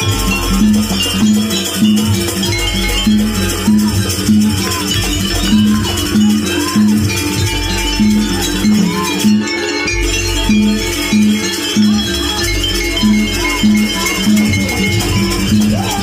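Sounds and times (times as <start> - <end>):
gong-chime steady beat: 0.0 - 16.0.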